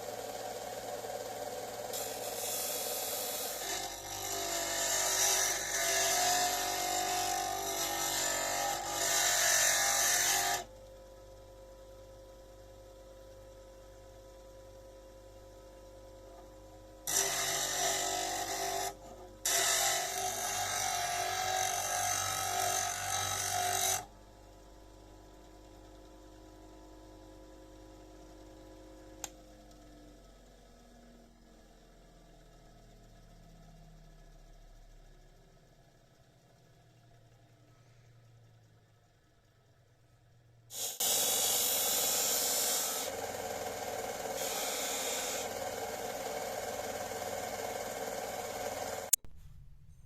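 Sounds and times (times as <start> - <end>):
grinder motor humming: 0.0 - 10.7, 17.1 - 24.1, 40.7 - 49.2
chisel grinding: 0.3 - 10.6, 17.1 - 24.1, 41.4 - 49.2.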